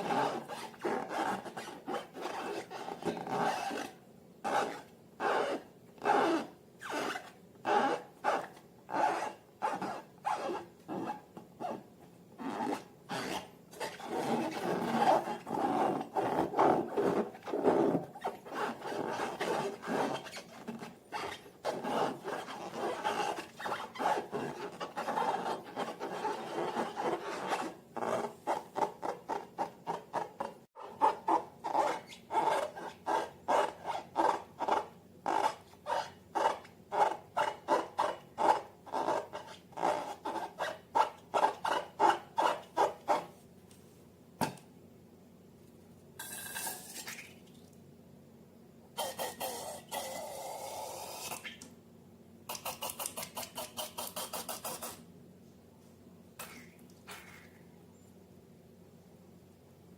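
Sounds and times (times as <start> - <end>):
slime rubbing and rasping: 12.5 - 43.3.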